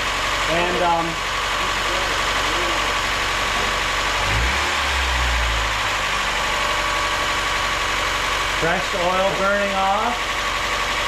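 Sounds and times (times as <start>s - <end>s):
car engine idling: 0.0s - 11.0s
low rumble: 3.2s - 7.1s.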